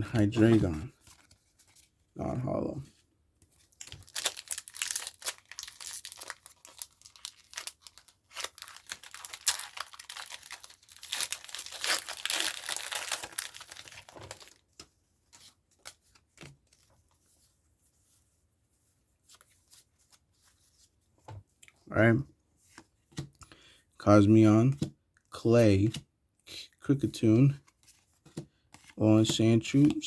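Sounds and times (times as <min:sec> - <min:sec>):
foil wrapper tearing and crinkling: 0:03.8 - 0:14.6.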